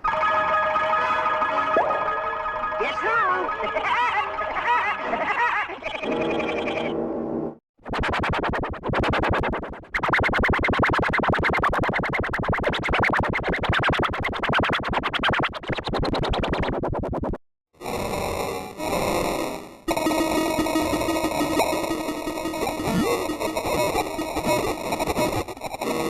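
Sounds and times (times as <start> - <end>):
stuttering synthesizer-like audio: 7.8 - 17.4, 19.9 - 26.0.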